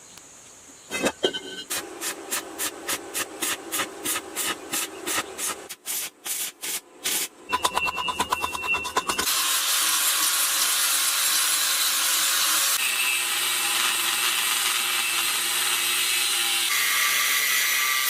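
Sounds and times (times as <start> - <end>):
faint high ringing tone: 0.9 - 1.7, 7.5 - 9.2
hand sanding strokes: 1.7 - 7.3.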